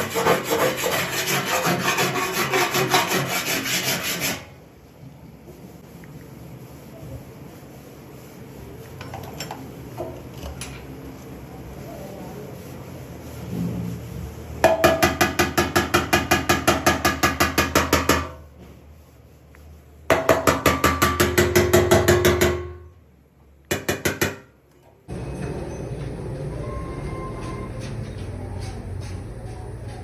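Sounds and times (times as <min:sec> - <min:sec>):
hammer tapping sheet metal: 0:14.6 - 0:18.5, 0:20.1 - 0:22.9, 0:23.7 - 0:24.6
steady mechanical noise: 0:25.1 - 0:30.0.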